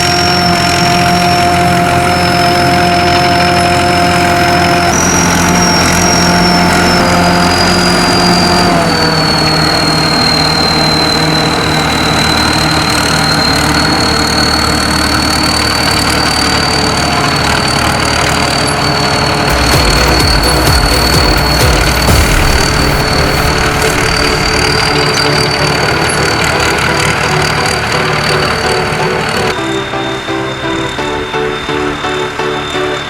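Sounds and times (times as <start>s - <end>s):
high whine from drive: 0.0s - 33.0s
mini combine harvester running: 0.0s - 33.0s.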